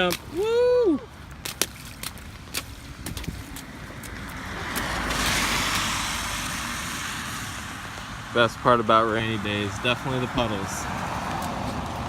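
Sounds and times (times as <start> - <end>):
car tyres hissing on wet road: 4.3 - 8.4.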